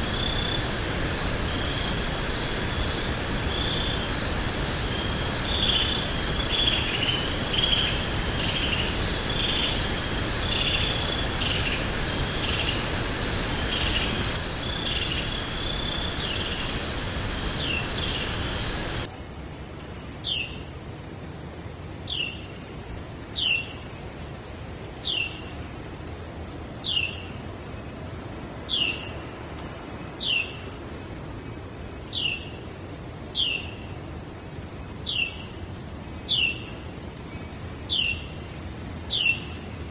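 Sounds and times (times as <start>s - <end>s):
insects trilling and chirping: 0.0s - 19.1s
steady hiss: 0.0s - 20.4s.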